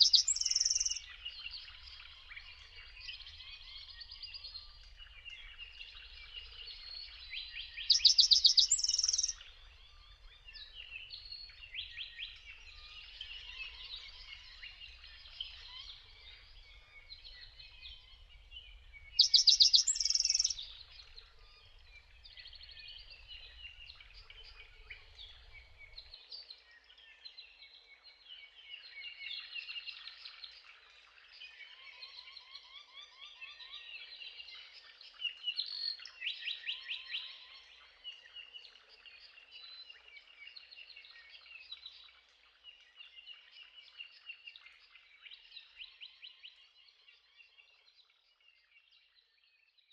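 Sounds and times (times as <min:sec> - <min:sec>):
bird singing rapid trilled phrase: 0:00.0 - 0:01.0, 0:07.8 - 0:09.4, 0:19.2 - 0:20.6
songbirds singing and chirping: 0:00.0 - 0:49.9.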